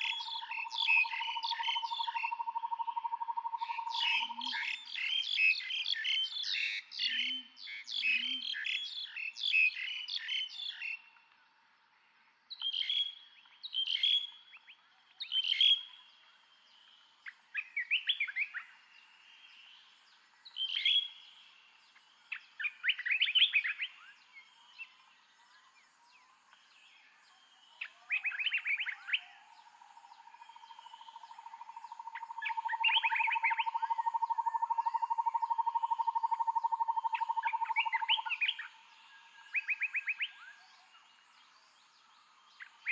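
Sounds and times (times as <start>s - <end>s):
birds chirping: 0.0s - 11.0s, 27.6s - 42.9s.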